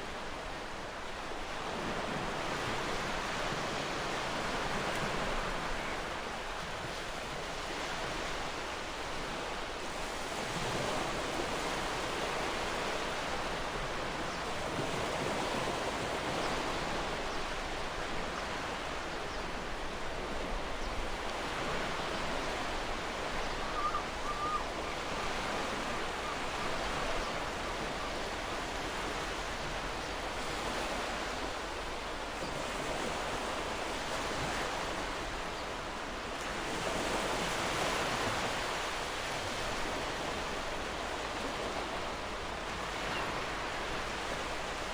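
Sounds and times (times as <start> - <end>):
ocean waves washing ashore: 0.0 - 44.9
faint bird call: 23.3 - 28.3.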